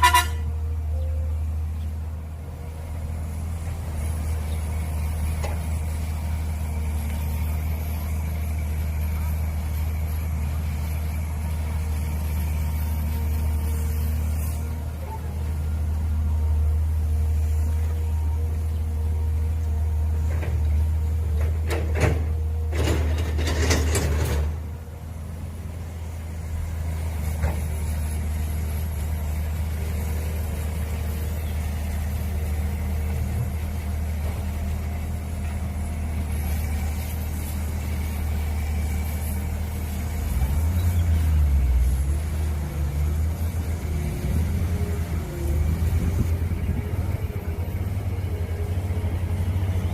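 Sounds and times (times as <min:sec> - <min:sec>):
excavator engine running: 0:00.0 - 0:49.9
knocks and scraping: 0:20.2 - 0:24.7.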